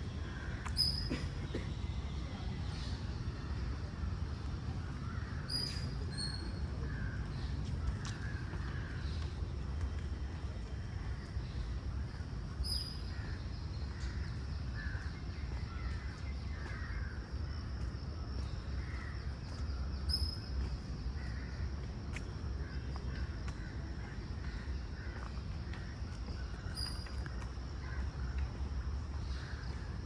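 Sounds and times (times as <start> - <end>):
crows cawing: 16.1 - 17.2.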